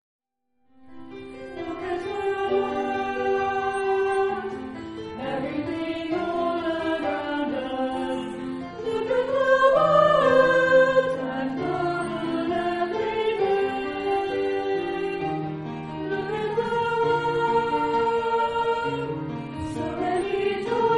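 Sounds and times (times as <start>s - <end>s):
choir singing sacred music: 1.1s - 20.9s.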